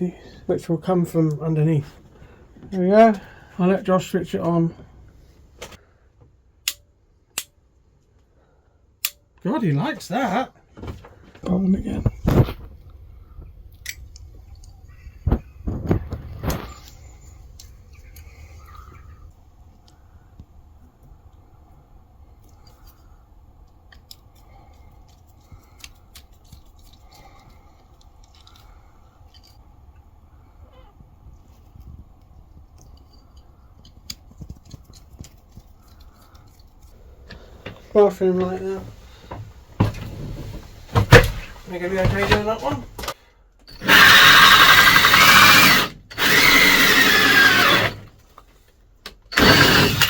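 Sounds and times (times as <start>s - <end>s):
sharp clicks and snips: 6.6s - 7.6s, 9.0s - 9.2s
power drill drilling: 43.7s - 48.1s, 49.3s - 50.0s.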